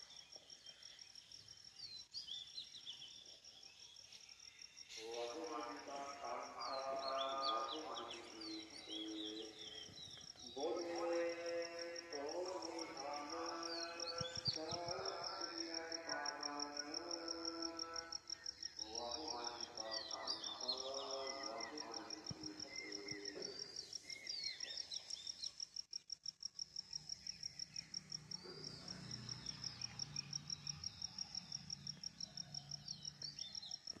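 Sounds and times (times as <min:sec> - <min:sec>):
bird chirps: 0:00.0 - 0:25.7
pulsing insect trill: 0:00.0 - 0:34.0.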